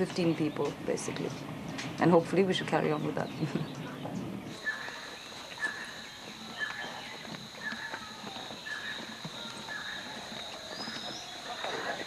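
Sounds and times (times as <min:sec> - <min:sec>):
insects droning: 0:04.5 - 0:12.0.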